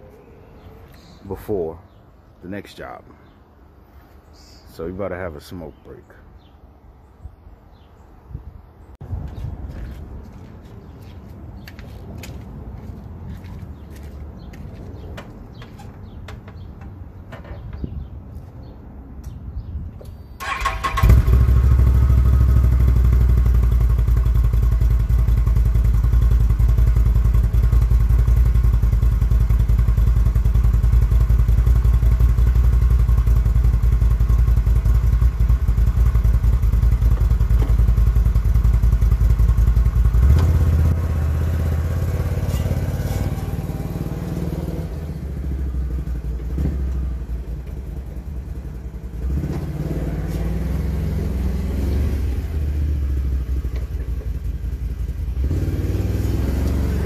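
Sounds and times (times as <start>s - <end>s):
atv engine running: 20.5s - 57.0s.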